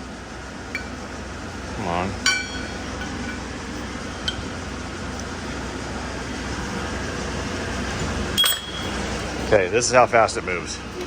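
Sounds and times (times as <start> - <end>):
metal clink: 2.2 - 3.4, 8.4 - 9.0.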